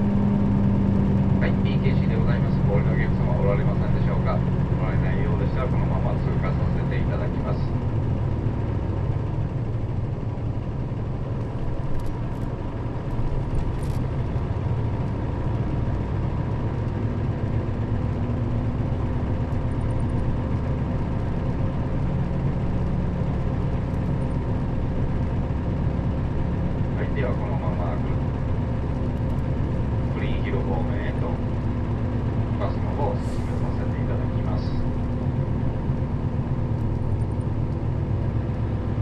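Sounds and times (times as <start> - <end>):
bus diesel engine running: 0.0 - 39.0
light clicks and rattles: 11.4 - 15.2, 28.9 - 30.3, 35.9 - 38.2.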